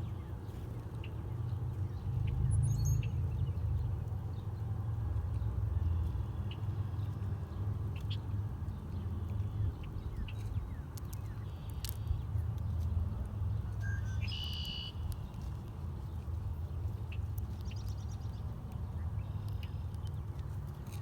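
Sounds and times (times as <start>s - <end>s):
small birds chirping: 0.0s - 21.0s
small clicks: 10.4s - 13.4s.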